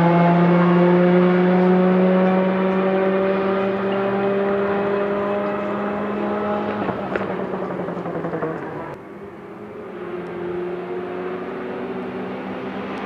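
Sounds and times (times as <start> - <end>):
faint engine note: 0.0 - 10.3
rally car engine at high revs: 0.0 - 13.0.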